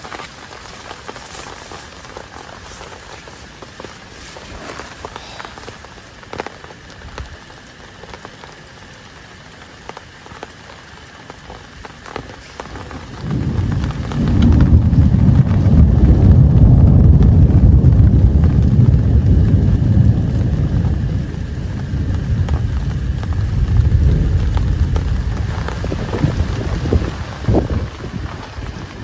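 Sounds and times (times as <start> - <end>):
drops ticking: 0.0 - 29.0
rain pattering: 0.0 - 29.0
loud low rumble: 12.6 - 28.8.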